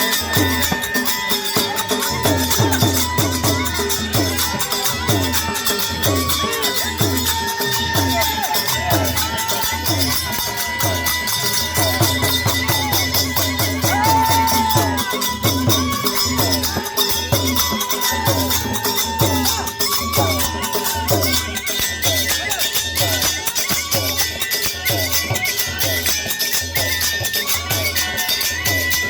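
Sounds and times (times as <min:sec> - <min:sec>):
double flute drone and melody: 0:00.0 - 0:23.2.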